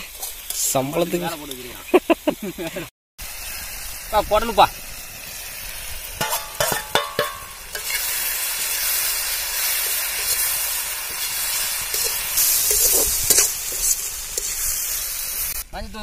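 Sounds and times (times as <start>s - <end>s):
food sizzling: 0.0s - 15.7s
food clattering into pan: 6.2s - 7.9s
metal ladle knocking: 6.2s - 7.9s.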